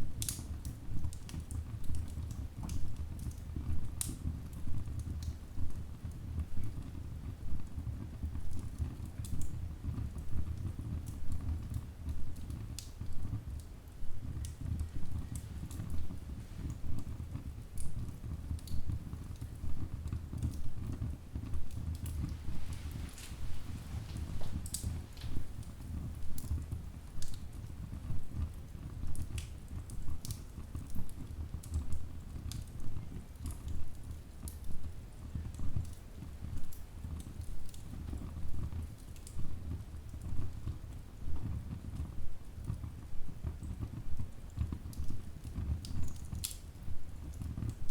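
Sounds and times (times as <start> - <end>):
low rumble of flames: 0.0 - 47.9
wood fire crackling: 0.0 - 47.9.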